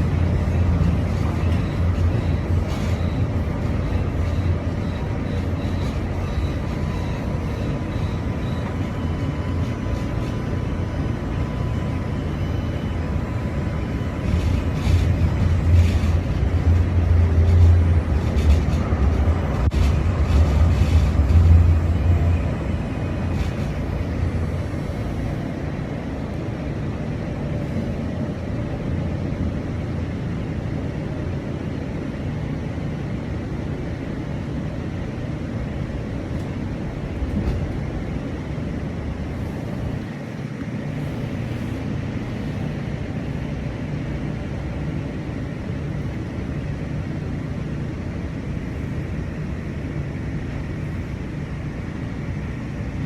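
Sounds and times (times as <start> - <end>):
train rumbling from inside: 0.0 - 53.0.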